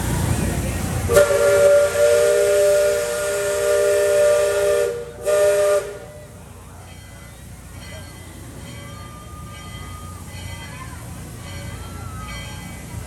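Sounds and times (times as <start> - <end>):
steam whistle blasts: 1.1 - 6.4.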